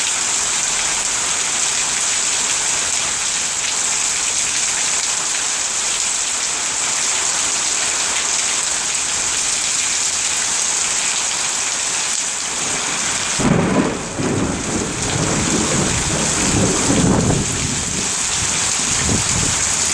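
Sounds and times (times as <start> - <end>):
heavy rain falling: 0.0 - 19.9
low rumble of thunder: 12.6 - 19.9.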